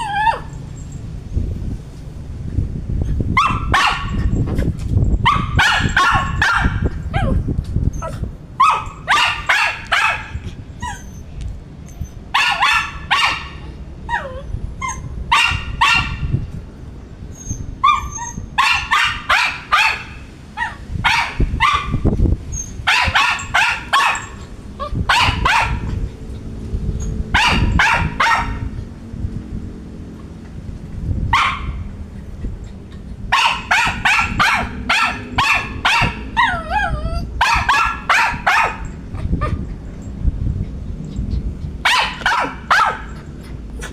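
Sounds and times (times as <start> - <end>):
dog whining: 0.0 - 1.0, 7.1 - 8.9, 10.2 - 12.3, 14.0 - 15.1, 17.3 - 18.5, 22.5 - 28.5, 36.0 - 37.8
dog barking: 3.4 - 4.3, 5.2 - 7.3, 8.6 - 10.4, 12.3 - 13.6, 15.3 - 16.3, 18.6 - 22.0, 22.9 - 24.4, 25.1 - 25.9, 27.3 - 28.7, 31.3 - 31.8, 33.3 - 36.6, 37.4 - 38.9, 41.8 - 43.2.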